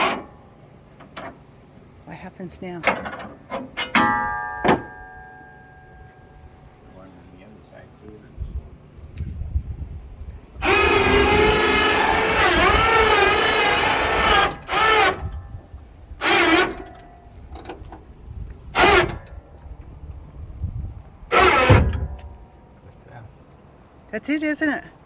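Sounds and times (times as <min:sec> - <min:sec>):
electric motor whining: 0:10.6 - 0:15.5, 0:16.2 - 0:17.0, 0:18.8 - 0:19.3, 0:21.3 - 0:22.1.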